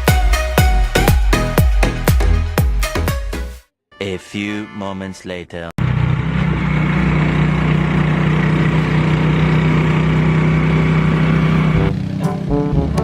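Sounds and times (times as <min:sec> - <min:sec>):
motorcycle engine droning: 0:05.8 - 0:13.0.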